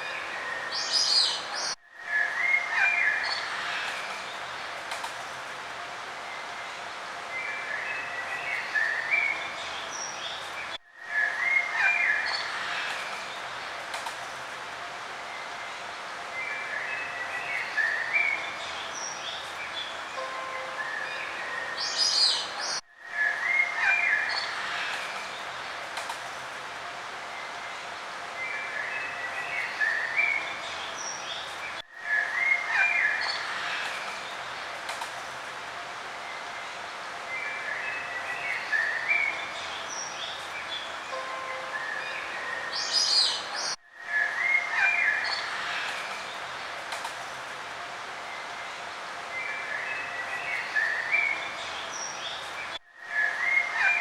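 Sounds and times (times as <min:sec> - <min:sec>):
songbirds chirping: 0:00.0 - 0:54.0
steady outdoor hiss: 0:00.0 - 0:54.0
songbirds chirping and singing: 0:27.3 - 0:34.7, 0:36.2 - 0:46.8, 0:48.3 - 0:54.0.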